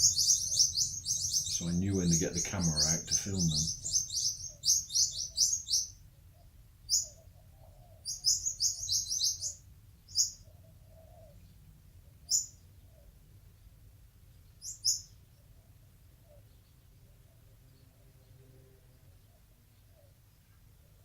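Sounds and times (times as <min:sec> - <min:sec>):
birds chirping high and sharp: 0:00.0 - 0:06.0, 0:06.9 - 0:07.4, 0:08.0 - 0:10.5, 0:12.2 - 0:12.8, 0:14.5 - 0:15.2.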